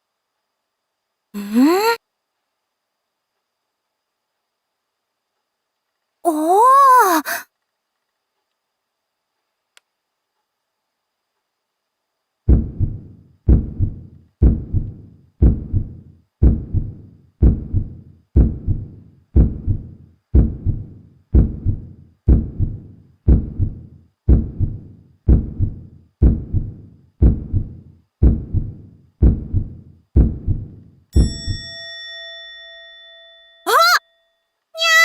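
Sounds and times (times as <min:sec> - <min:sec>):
low double thumps: 0:12.5 - 0:31.6.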